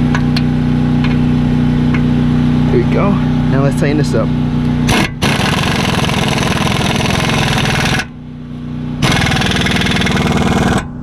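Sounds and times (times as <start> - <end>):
steady low hum: 0.0 - 11.0
impact wrench hammering: 4.9 - 8.2, 9.0 - 11.0.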